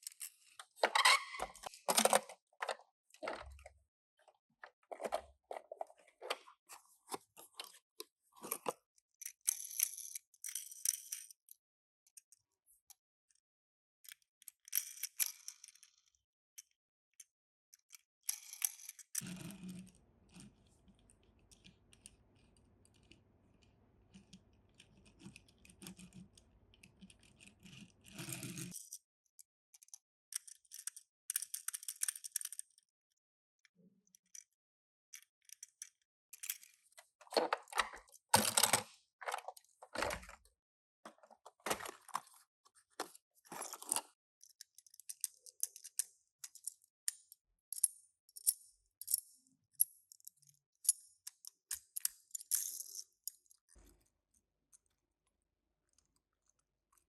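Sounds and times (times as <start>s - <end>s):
toy cars clicking and rattling: 8.5s - 11.6s, 14.1s - 29.0s, 29.7s - 32.9s, 35.2s - 40.4s, 41.1s - 46.9s, 50.1s - 53.8s.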